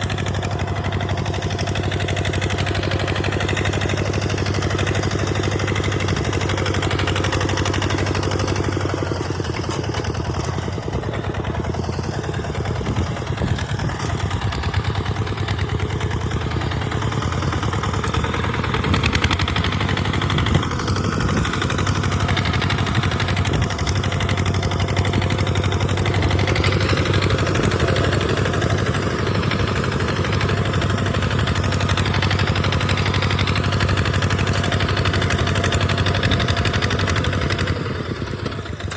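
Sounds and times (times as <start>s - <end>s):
tractor engine running under load: 0.0s - 38.9s.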